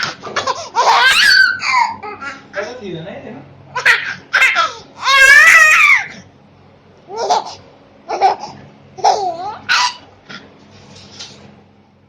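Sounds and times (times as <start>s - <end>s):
baby laughing: 0.0s - 2.7s, 3.7s - 6.2s, 7.1s - 10.1s.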